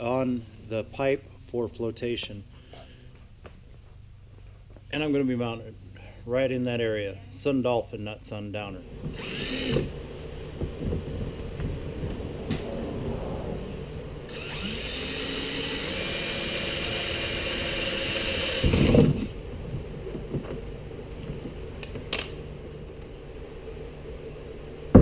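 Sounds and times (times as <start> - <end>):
knocks and scraping: 9.0 - 14.4
power drill cutting plastic: 9.1 - 9.9, 14.3 - 19.4.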